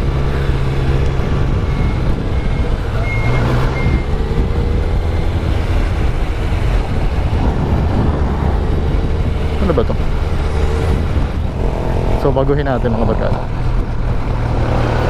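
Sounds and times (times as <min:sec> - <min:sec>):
short high beeps: 0:01.6 - 0:04.2.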